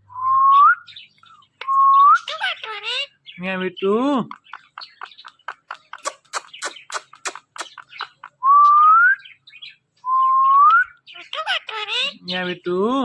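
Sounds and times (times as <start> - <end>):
parrot clicking chirps: 4.2 - 8.4.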